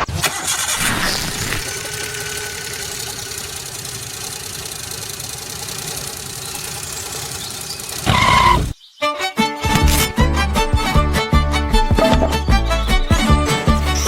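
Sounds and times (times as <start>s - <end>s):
engine running with knocking rattle: 1.4s - 8.8s.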